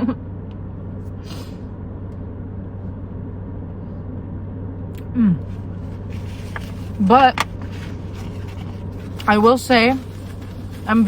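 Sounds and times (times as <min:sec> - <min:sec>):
car engine hum inside cabin: 0:00.0 - 0:11.0
brief rustle: 0:06.0 - 0:09.3.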